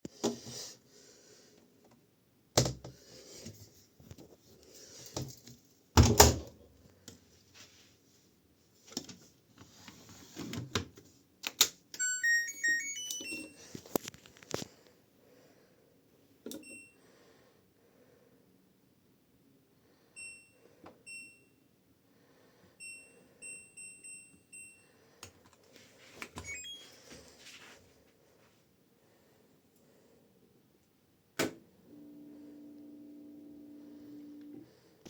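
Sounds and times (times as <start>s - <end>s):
electronic beeps: 26.4s - 26.9s.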